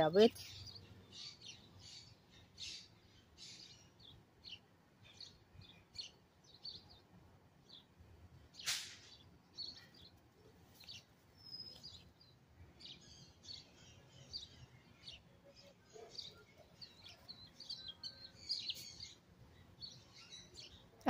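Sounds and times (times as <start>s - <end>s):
garden background noise: 0.0s - 21.0s
small birds chirping: 0.0s - 21.0s
sharp click: 8.6s - 9.0s.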